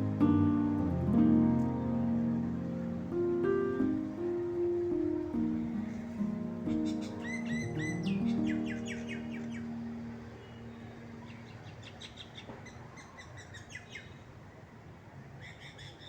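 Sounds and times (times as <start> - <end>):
background music low note: 0.0 - 11.7
birds chirping: 0.0 - 14.3.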